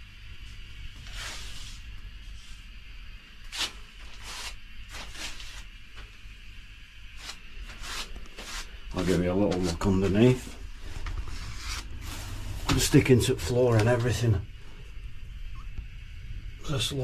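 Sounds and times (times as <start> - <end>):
heater humming: 0.0 - 17.0
hissy rustles and scrapes: 0.4 - 2.8, 3.5 - 6.0.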